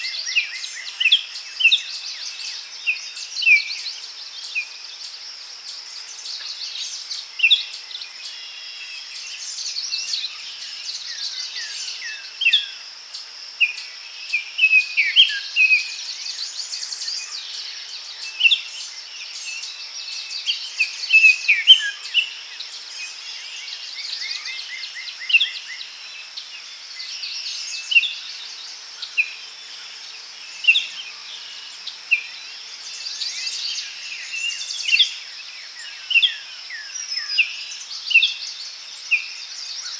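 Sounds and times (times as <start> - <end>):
birds chirping and trilling: 0.0 - 39.9
high insect hum: 0.0 - 39.9.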